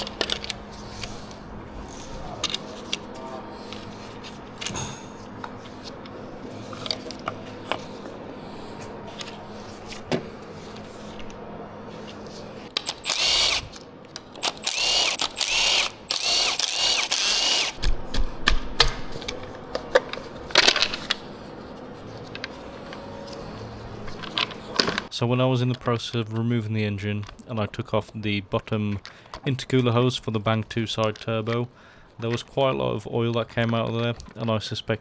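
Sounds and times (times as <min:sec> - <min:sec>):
power tool whirring: 0:12.6 - 0:19.1.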